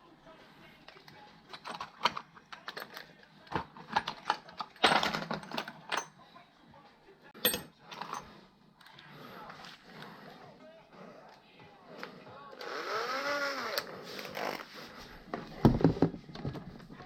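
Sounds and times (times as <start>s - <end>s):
metal tools clinking: 1.5s - 6.2s, 7.4s - 8.4s.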